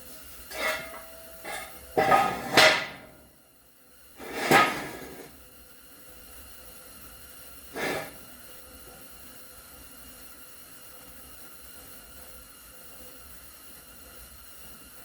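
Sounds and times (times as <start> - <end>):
metal jack stands clanking: 0.5 - 3.2, 4.2 - 5.2.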